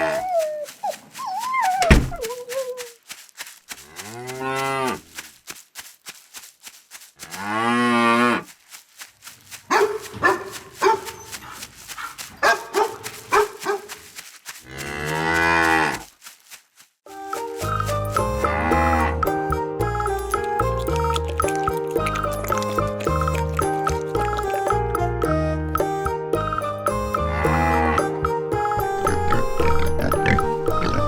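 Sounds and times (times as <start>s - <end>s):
cattle mooing: 28.9s - 31.0s.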